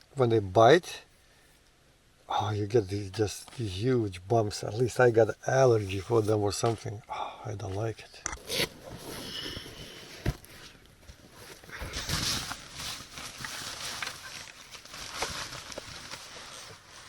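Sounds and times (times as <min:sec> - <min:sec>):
rustling handling noise: 0:07.7 - 0:17.0.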